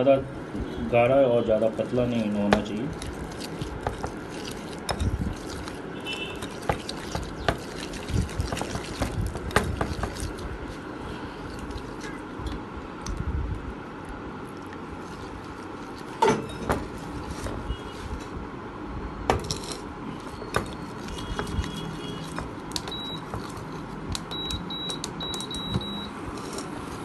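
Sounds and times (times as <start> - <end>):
utensil scraping and clinking bowl: 2.2 - 12.6, 19.4 - 23.8, 26.3 - 27.0.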